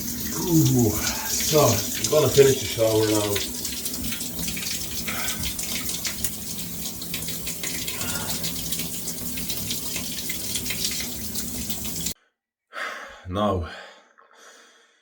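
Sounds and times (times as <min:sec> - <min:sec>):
shower running: 0:00.0 - 0:12.2.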